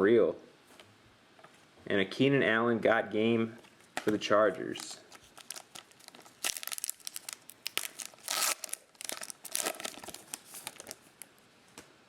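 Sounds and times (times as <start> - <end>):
foil wrapper crinkling and tearing: 4.8 - 11.4.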